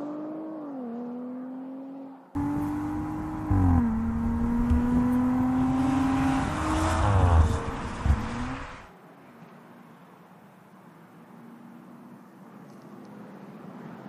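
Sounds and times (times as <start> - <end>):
car engine accelerating hard: 0.0 - 8.9.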